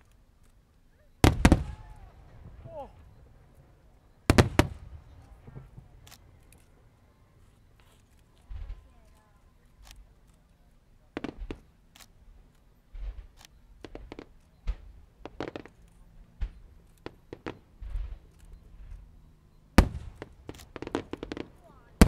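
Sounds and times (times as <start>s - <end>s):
fireworks bangs and pops: 1.2s - 3.2s, 4.2s - 6.4s, 7.8s - 9.2s, 11.0s - 22.0s.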